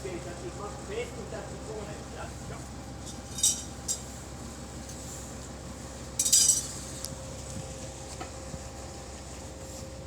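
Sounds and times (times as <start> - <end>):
metal hardware clinking: 3.3 - 3.7.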